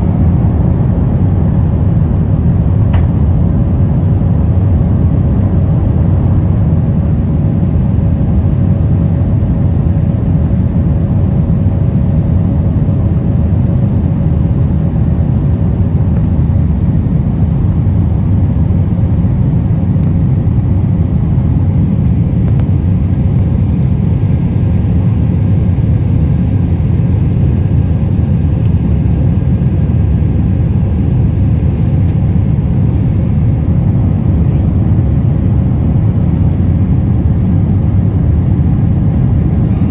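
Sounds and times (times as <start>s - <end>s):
jet engines rumbling: 0.0s - 39.9s
faint hum: 9.3s - 39.9s.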